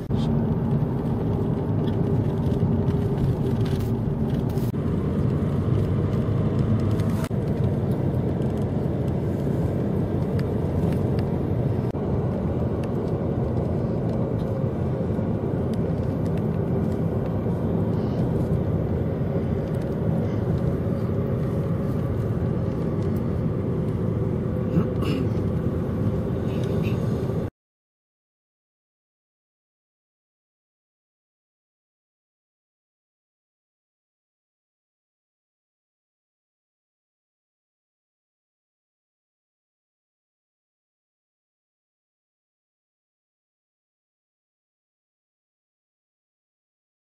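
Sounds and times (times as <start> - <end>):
car engine hum: 0.0 - 27.5
road noise: 0.0 - 27.5.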